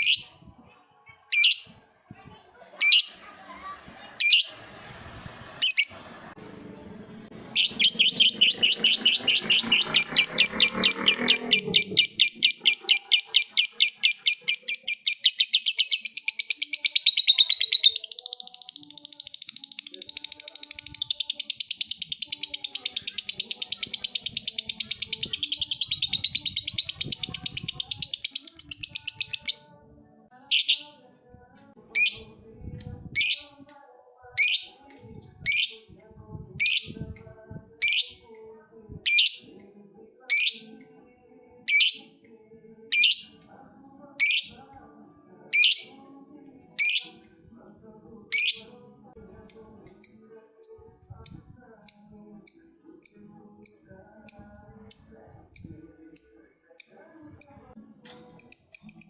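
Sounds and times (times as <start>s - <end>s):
lovebird chattering trill: 1.3s - 1.6s, 7.6s - 29.6s
sharp shrill bird calls: 1.4s - 1.7s, 7.6s - 18.5s.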